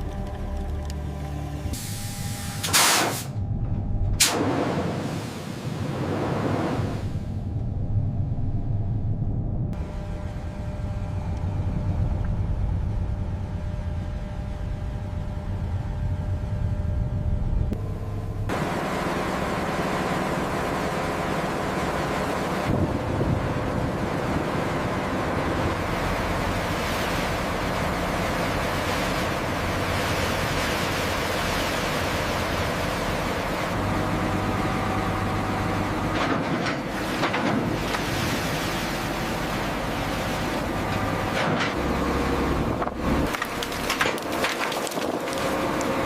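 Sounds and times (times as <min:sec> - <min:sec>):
low mechanical drone: 0:00.0 - 0:05.0, 0:05.8 - 0:46.0
wind: 0:00.0 - 0:46.0
sea noise: 0:04.2 - 0:07.6, 0:18.6 - 0:43.3.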